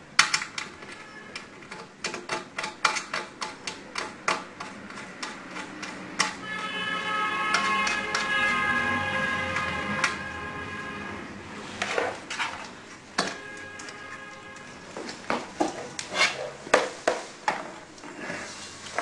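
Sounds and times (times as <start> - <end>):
metal and plastic parts clicking: 0.2 - 6.4.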